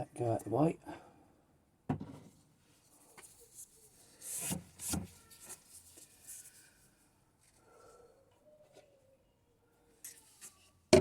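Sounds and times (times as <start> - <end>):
jug set down with a knock: 1.9 - 2.3
rubbing and scuffing handling: 2.3 - 6.8.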